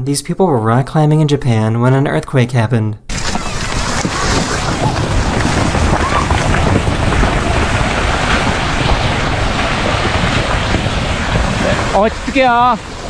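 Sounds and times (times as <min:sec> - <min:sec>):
wind buffeting microphone: 0:03.1 - 0:13.0.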